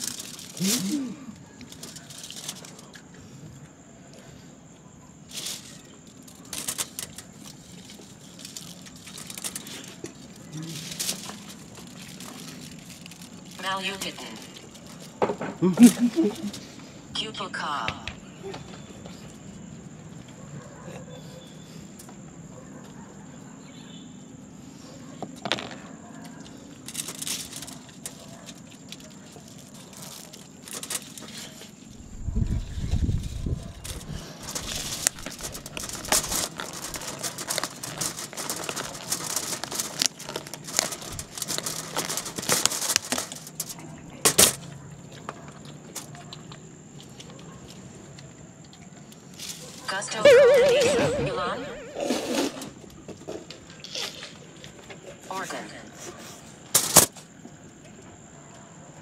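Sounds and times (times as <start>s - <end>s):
rustling: 0.0s - 3.0s, 5.2s - 15.2s, 32.5s - 43.8s
crickets trilling: 0.0s - 59.0s.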